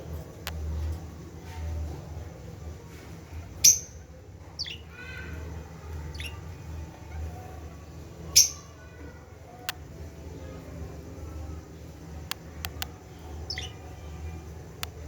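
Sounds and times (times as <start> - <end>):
lovebirds calling: 1.9 - 15.0.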